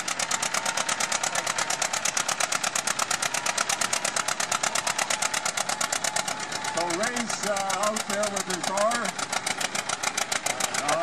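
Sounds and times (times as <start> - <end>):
garden tractor engine under load: 0.0 - 11.0.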